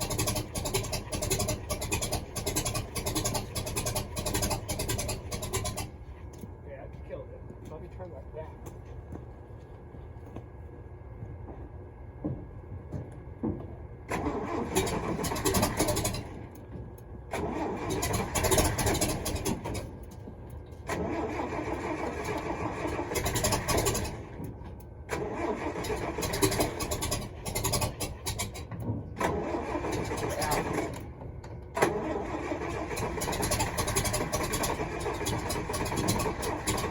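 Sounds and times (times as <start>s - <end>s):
truck engine starter cranking: 0.0s - 6.0s, 14.1s - 16.6s, 17.3s - 20.2s, 20.8s - 36.9s.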